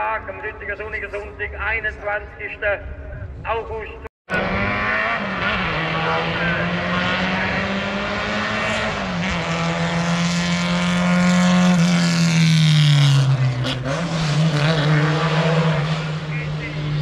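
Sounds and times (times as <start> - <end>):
sports car engine running hard: 14.5 - 17.0.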